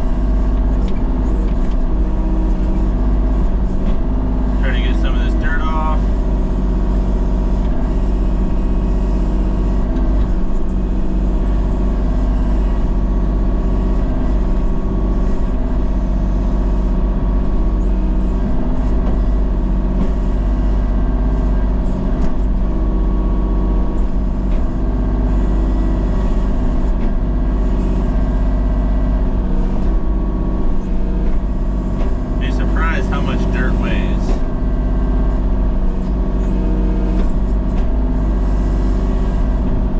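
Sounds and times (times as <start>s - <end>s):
machine engine low rumble: 0.0s - 39.9s.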